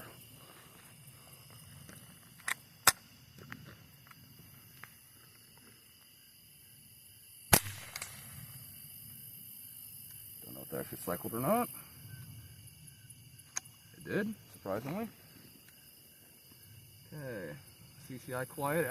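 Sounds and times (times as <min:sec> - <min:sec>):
quiet rifle shots: 0:02.3 - 0:03.2, 0:07.5 - 0:09.1
rifle action clicks: 0:07.6 - 0:08.2.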